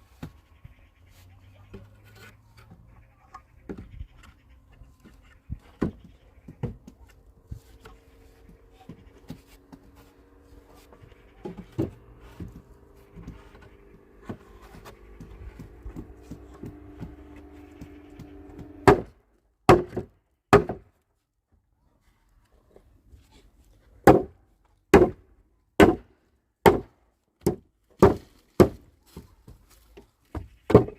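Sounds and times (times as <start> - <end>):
tool knocks and taps: 11.0 - 19.1.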